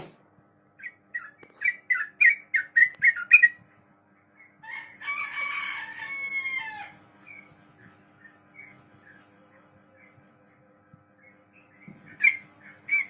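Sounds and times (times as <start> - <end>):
bird singing: 0.8 - 3.6, 7.2 - 7.6, 8.2 - 10.5, 11.1 - 13.0.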